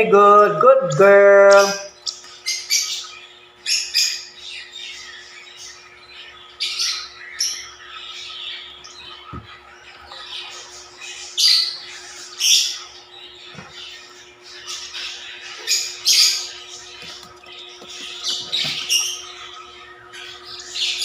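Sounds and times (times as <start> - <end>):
birds chattering: 0.0 - 21.0
shrill bird calls: 0.9 - 21.0.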